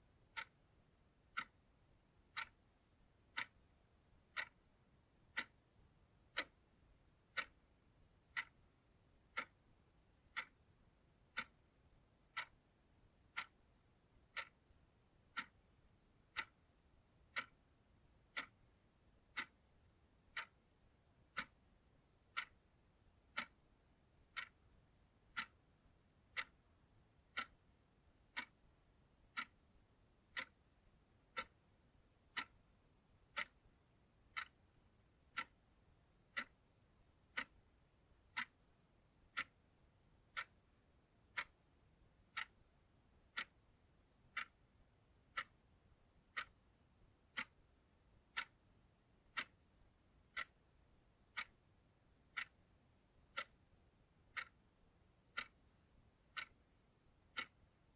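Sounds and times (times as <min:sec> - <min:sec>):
clock ticking: 0:00.0 - 0:57.9.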